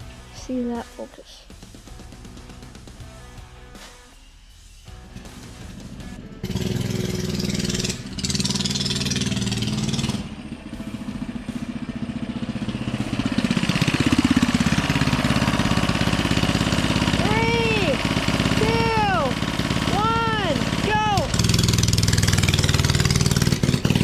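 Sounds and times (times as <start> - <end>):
mini bike engine revving: 5.1 - 24.0.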